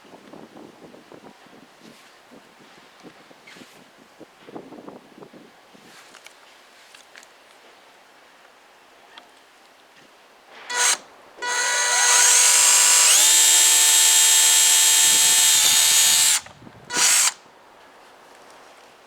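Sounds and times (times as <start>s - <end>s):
drill trigger blip: 10.7s - 17.4s
electric hammer drill whining: 10.7s - 17.4s.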